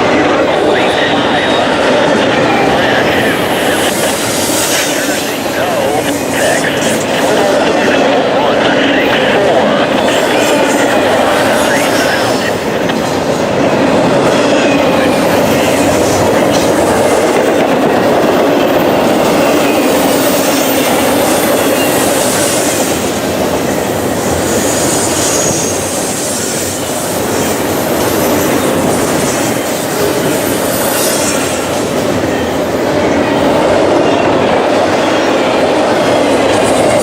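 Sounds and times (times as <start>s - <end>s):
freight train wheels rumbling: 0.0s - 37.0s
high wheel squeals: 19.2s - 22.9s, 24.0s - 27.3s.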